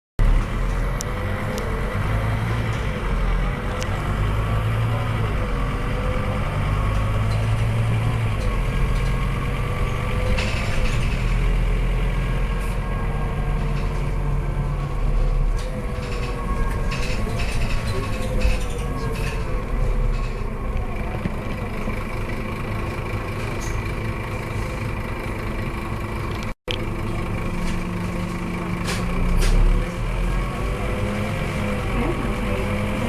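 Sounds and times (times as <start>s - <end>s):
bus diesel engine droning: 0.2s - 33.0s.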